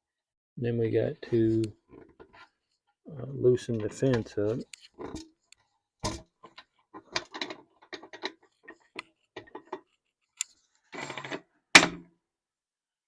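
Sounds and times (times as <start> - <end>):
metal clicks and knocks: 6.0 - 10.5.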